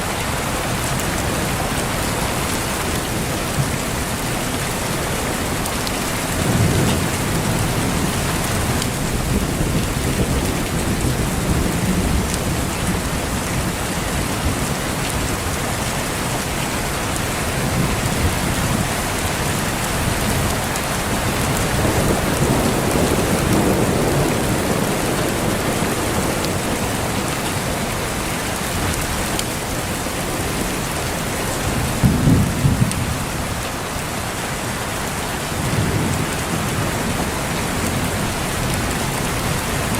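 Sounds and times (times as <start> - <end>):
heavy rain: 0.0 - 39.9
distant thunder rolling: 21.1 - 29.5, 30.5 - 33.6.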